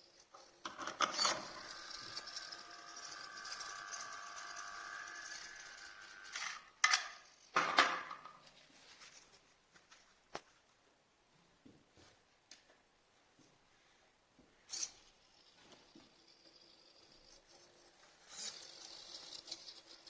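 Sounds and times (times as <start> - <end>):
servo motors whirring: 1.1 - 6.7.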